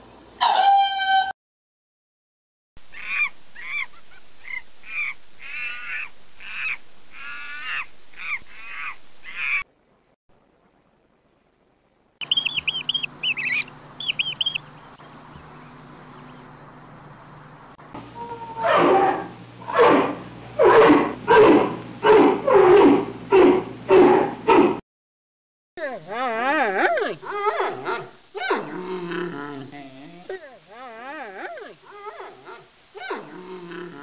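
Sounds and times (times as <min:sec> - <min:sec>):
high-pitched squeaks: 0:12.2 - 0:16.5
monkey calling: 0:12.2 - 0:16.5.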